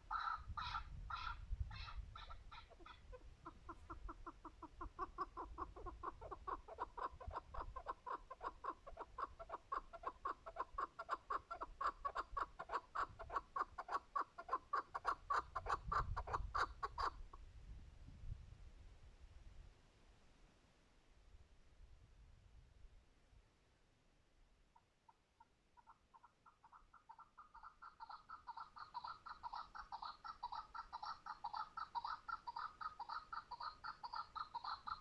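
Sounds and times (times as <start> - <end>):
partridge calling: 0.0 - 17.3, 25.8 - 35.0.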